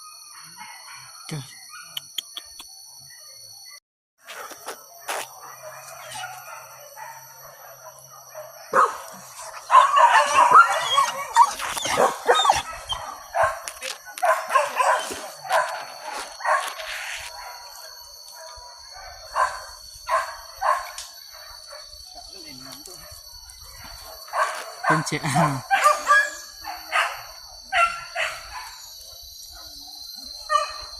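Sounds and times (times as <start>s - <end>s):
dogs barking: 5.0s - 22.2s, 23.0s - 30.9s.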